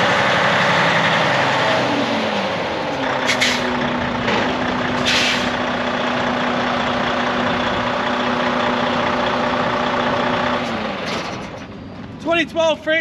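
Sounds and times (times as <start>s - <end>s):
diesel truck engine idling: 0.0s - 12.6s
air release hiss: 5.0s - 5.6s.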